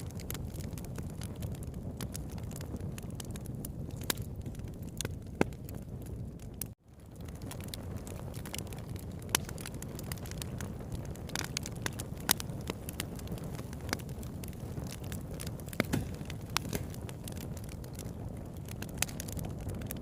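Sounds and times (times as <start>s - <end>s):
campfire crackles and pops: 0.0s - 20.0s
low rumble of flame: 0.0s - 20.0s.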